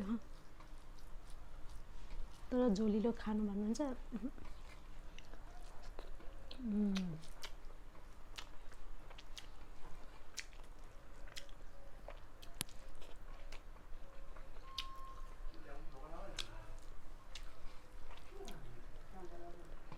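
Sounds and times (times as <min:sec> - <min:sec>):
close-up chewing: 0:00.0 - 0:19.9
wet mouth clicks and lip smacks: 0:10.3 - 0:13.6, 0:14.6 - 0:15.0.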